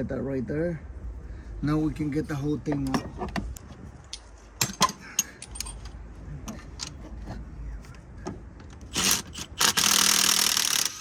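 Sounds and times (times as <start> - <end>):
metal tools clinking and rattling: 4.1 - 7.1.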